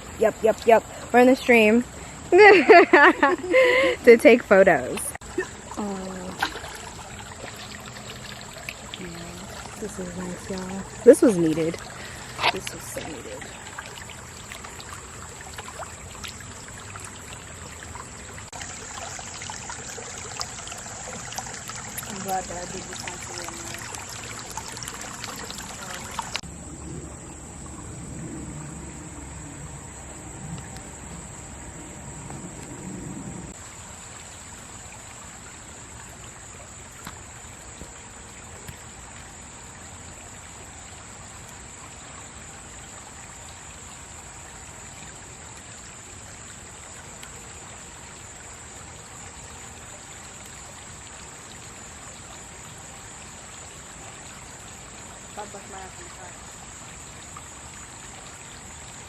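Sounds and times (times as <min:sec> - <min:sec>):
insect trill: 0:00.0 - 0:59.0
stream water running: 0:00.0 - 0:59.0.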